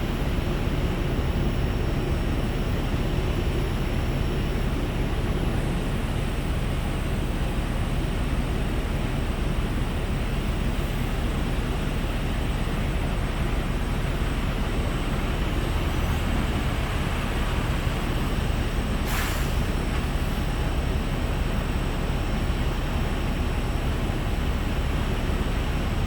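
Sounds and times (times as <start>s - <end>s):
diesel engine idling: 0.0s - 26.0s
short sharp air hiss: 19.0s - 19.7s.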